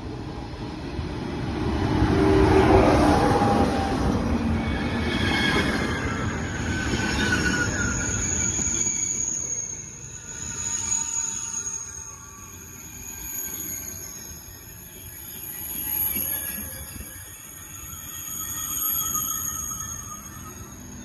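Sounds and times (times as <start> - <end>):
high-speed train rumbling: 0.0 - 12.8
high-pitched squeal: 2.2 - 21.0
wheels squealing: 2.6 - 21.0.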